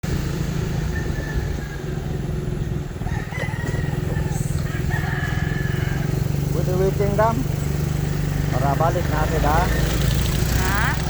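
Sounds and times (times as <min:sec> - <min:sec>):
motorcycle engine idling: 0:00.0 - 0:11.0
rooster crowing: 0:00.8 - 0:02.2, 0:03.0 - 0:06.4.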